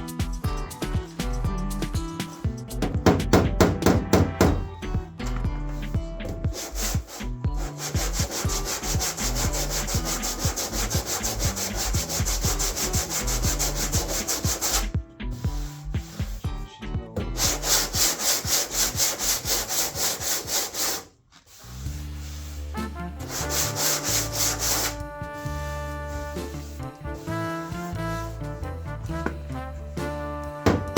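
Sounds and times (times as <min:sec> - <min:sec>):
background music: 0:00.0 - 0:21.0, 0:21.6 - 0:30.9
hand sanding car panel: 0:06.5 - 0:16.4, 0:17.4 - 0:28.0.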